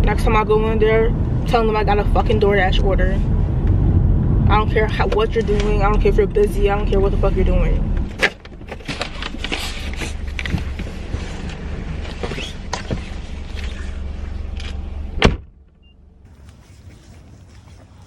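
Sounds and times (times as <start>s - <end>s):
vehicle running hum: 0.0s - 18.0s
clicks creaks and rustling: 8.1s - 14.8s.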